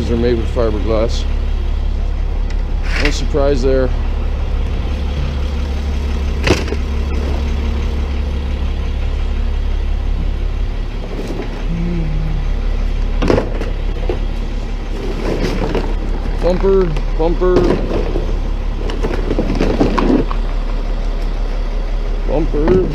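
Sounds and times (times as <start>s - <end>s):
truck engine idling: 0.0s - 22.9s.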